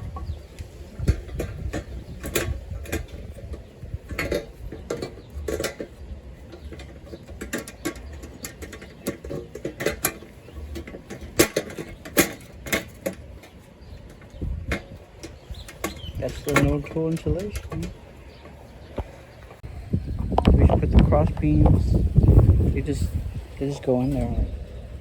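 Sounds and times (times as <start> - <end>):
metal panels clanking and clicking: 1.0 - 19.6.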